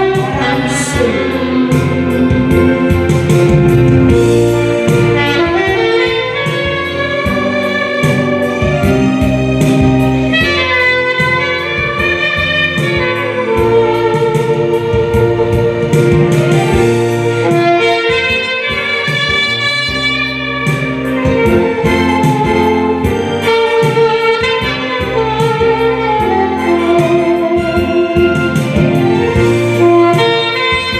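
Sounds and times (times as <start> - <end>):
saxophone slow melody: 0.0 - 30.9
steady drum beat: 0.0 - 30.9.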